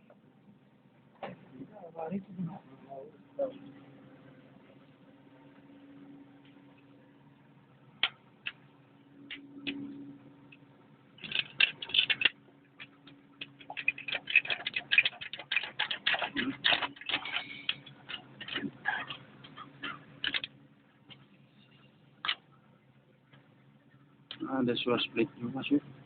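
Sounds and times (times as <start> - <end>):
faint steady hum: 0.0 - 26.0
metal parts and tools clicking: 11.2 - 20.5.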